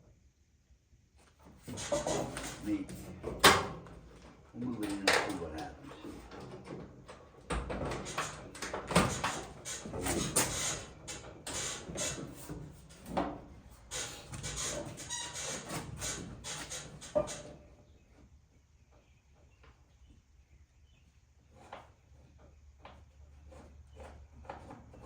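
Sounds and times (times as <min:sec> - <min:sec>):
metal knocks and clanks: 0:01.6 - 0:17.6.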